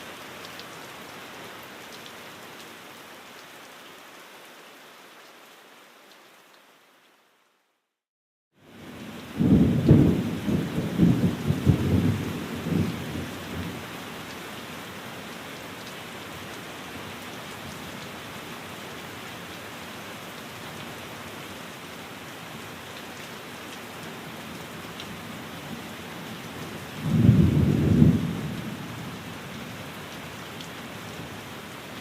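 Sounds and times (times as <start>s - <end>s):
rain on a window pane: 0.1s - 7.8s, 8.6s - 32.0s
low rumble of thunder: 9.2s - 13.8s, 27.0s - 29.2s.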